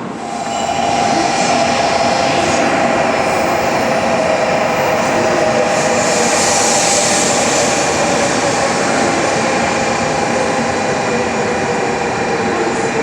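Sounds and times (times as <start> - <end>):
whining tones: 0.0 - 8.0
train rushing: 0.0 - 13.0.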